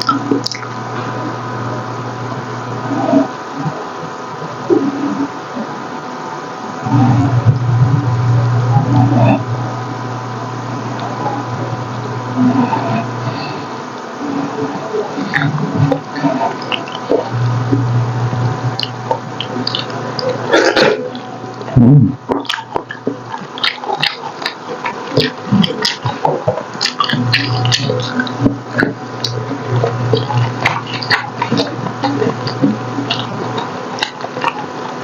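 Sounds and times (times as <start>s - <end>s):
wet chewing and lip-smacking: 0.0s - 0.8s, 15.2s - 17.9s, 18.7s - 21.7s, 22.3s - 35.0s
person humming mm: 6.8s - 9.9s, 10.8s - 22.3s.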